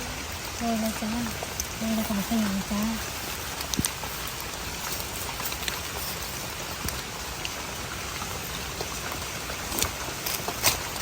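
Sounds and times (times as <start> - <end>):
steady rain falling: 0.0 - 11.0
light drip taps: 3.5 - 6.0.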